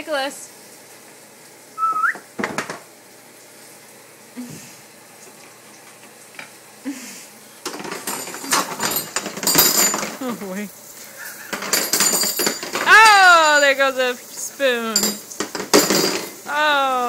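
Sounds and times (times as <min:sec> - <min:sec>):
cutlery clinking and clattering: 0:07.6 - 0:10.5, 0:11.3 - 0:14.0, 0:15.0 - 0:16.4.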